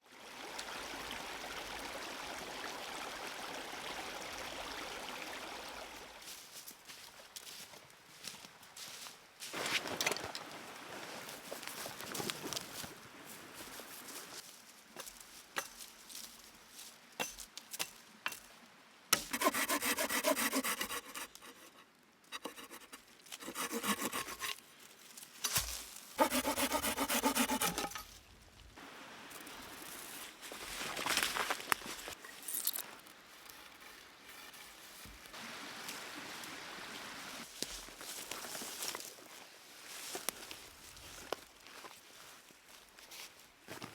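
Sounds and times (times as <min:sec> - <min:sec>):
stream running over stones: 0:00.0 - 0:06.8, 0:09.4 - 0:42.3
hand saw cutting wood: 0:19.2 - 0:24.6, 0:25.5 - 0:28.1, 0:33.3 - 0:35.3.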